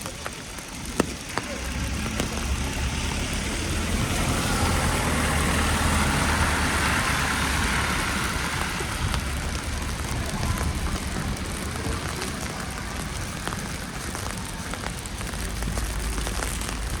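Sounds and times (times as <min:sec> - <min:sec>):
vehicle passing by: 0:01.4 - 0:14.6.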